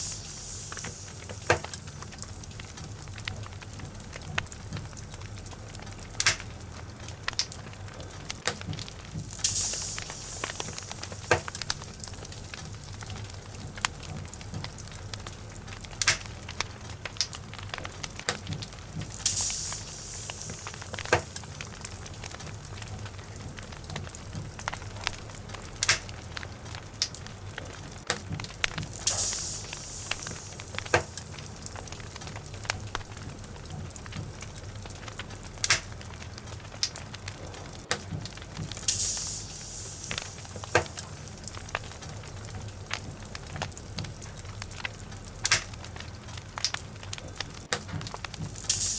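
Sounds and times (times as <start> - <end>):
short hiss: 0.0 - 2.4, 9.3 - 12.6, 19.1 - 22.2, 28.7 - 32.2, 38.7 - 42.0, 48.6 - 48.9
wood fire crackling and popping: 0.0 - 48.9.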